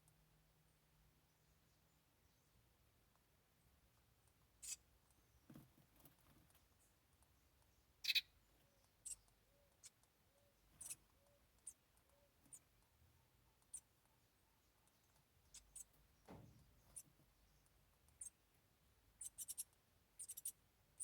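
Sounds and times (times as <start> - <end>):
faint clicks and scratches: 3.9 - 7.8.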